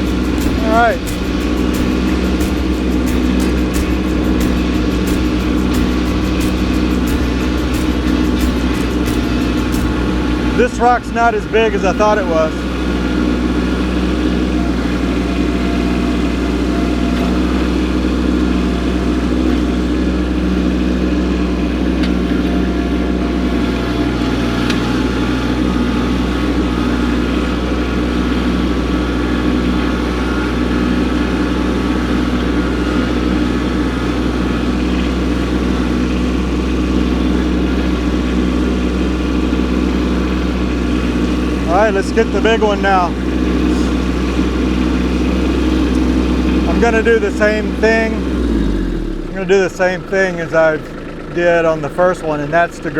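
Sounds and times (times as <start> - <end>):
tractor diesel engine running: 0.0 - 52.9.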